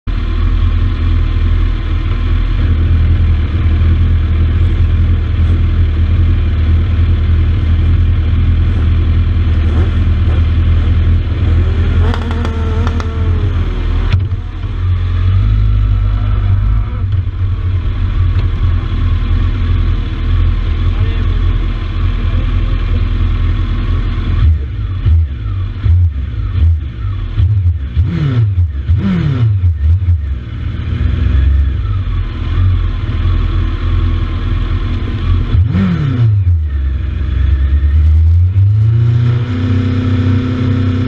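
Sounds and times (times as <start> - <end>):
motorcycle engine idling: 0.1 - 28.0.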